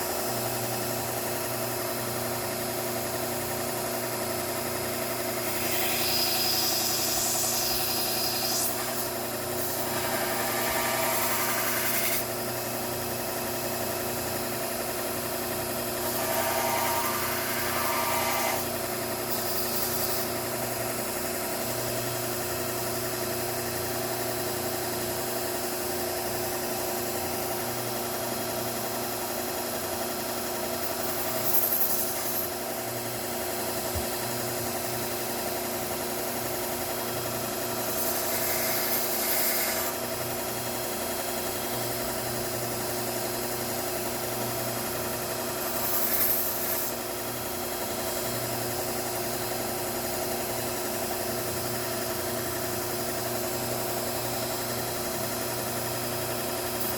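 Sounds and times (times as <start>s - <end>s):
belt grinder motor hum: 4.6s - 13.1s, 14.1s - 21.2s, 36.6s - 40.2s, 44.5s - 50.5s
blade grinding on belt: 4.9s - 12.4s, 15.4s - 20.8s, 30.8s - 32.7s, 37.2s - 40.1s, 44.8s - 49.7s, 55.1s - 56.9s.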